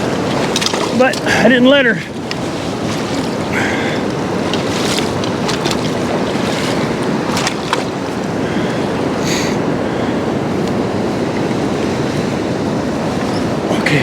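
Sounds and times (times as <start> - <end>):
river rapids rushing: 0.0 - 14.0.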